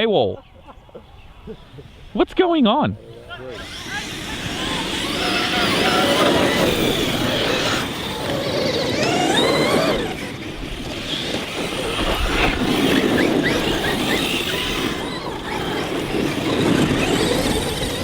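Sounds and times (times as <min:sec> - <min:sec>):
steady noisy background: 0:00.4 - 0:18.0
electric motors whining: 0:02.9 - 0:18.0.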